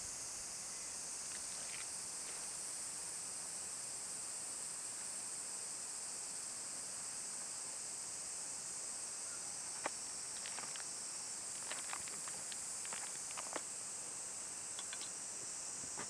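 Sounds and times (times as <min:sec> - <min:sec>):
high-pitched outdoor hiss: 0:00.0 - 0:16.0.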